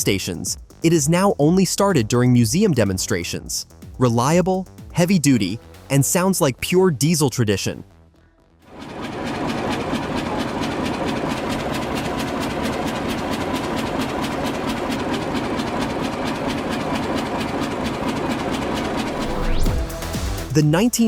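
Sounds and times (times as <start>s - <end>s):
diesel engine clattering: 8.7s - 20.2s.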